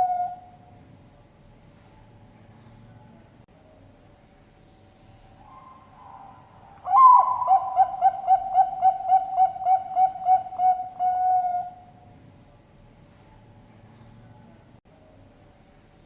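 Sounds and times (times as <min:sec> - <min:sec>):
dove cooing: 0:00.0 - 0:00.6, 0:06.8 - 0:11.9.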